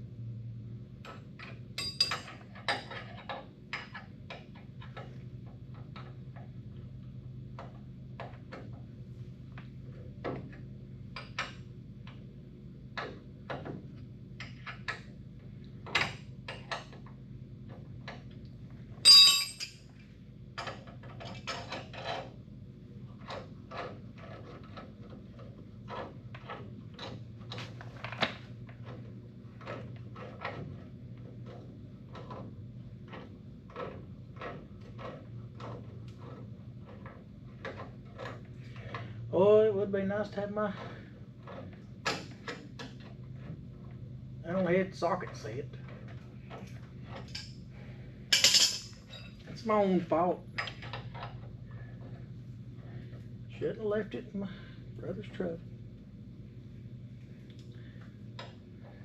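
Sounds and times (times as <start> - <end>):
metal tools clinking: 1.8 - 2.7, 19.0 - 19.9, 48.3 - 49.4.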